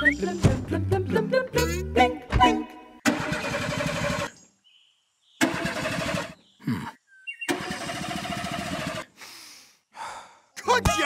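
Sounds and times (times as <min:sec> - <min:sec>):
car engine cranking: 0:07.5 - 0:09.0.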